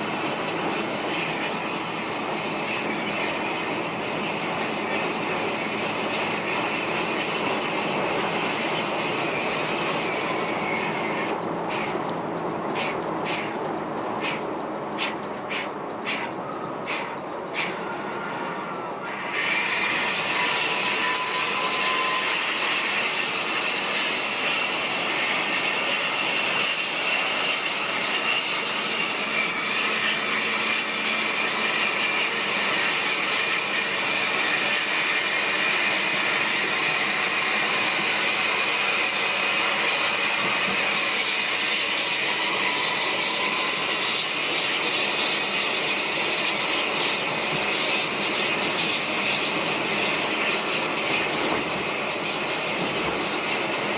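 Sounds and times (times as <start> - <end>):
bus road and engine noise: 0.0 - 20.3.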